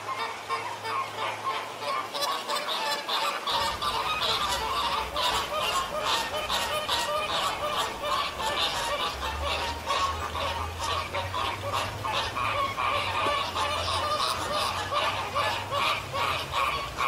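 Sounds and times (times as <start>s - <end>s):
flamingos honking: 0.0s - 17.0s.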